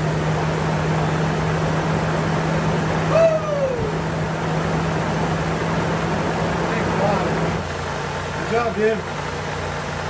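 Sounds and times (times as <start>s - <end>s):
car engine running steadily: 0.0s - 10.0s
short falling cry: 3.1s - 4.0s.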